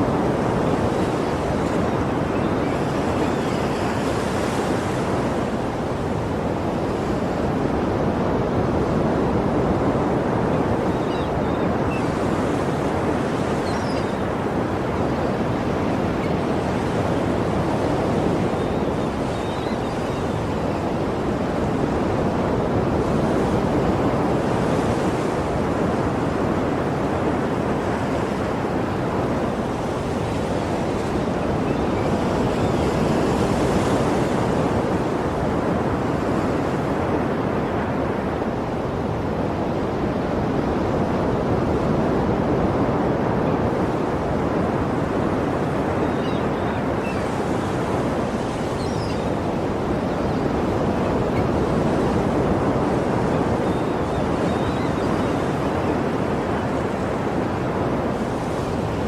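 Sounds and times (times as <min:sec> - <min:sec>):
waves breaking and washing: 0:00.0 - 0:59.0.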